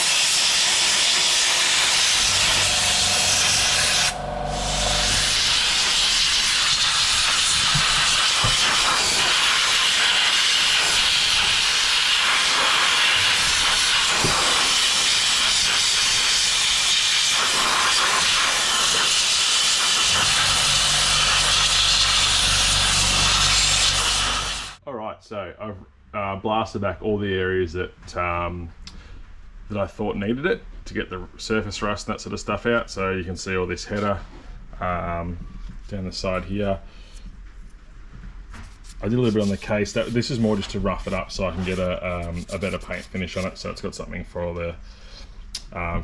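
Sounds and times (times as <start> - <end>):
abrasive blasting gun hissing: 0.0 - 24.8
low hum: 2.1 - 7.3, 20.0 - 24.8.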